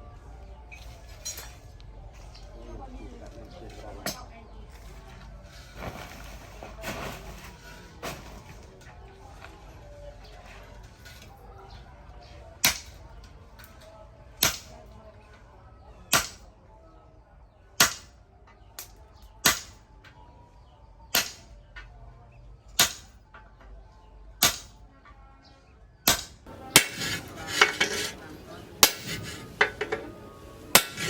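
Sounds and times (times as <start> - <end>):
hammer clanging on steel: 14.4 - 14.8, 26.1 - 31.0
metal clatter: 26.5 - 31.0.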